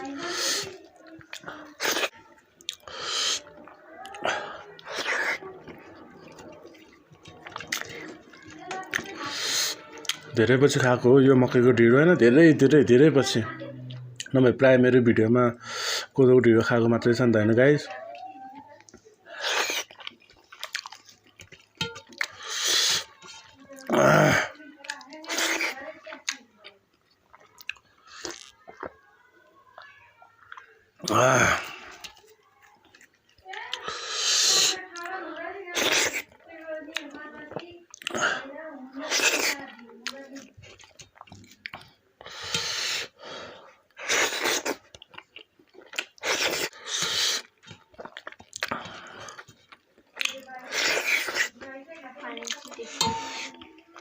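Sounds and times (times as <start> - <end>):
wet chewing and mouth noises: 0.0 - 14.4, 17.8 - 54.0
hissing slurps: 2.8 - 8.3, 9.0 - 9.8, 22.3 - 23.5, 33.8 - 34.8, 44.0 - 44.8, 46.2 - 47.6, 50.6 - 51.6.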